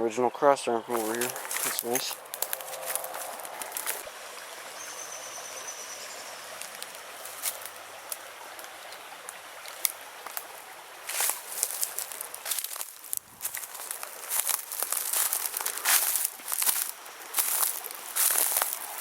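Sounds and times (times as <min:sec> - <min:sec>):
creek water flowing: 0:00.7 - 0:19.0
sharp clicks and crackles: 0:01.2 - 0:04.0.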